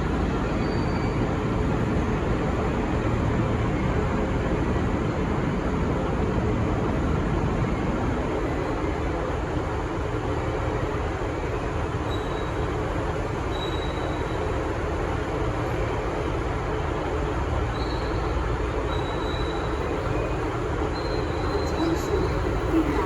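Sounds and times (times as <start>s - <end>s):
diesel train rumble: 0.0s - 23.0s
faint high-pitched squeals: 17.7s - 23.0s.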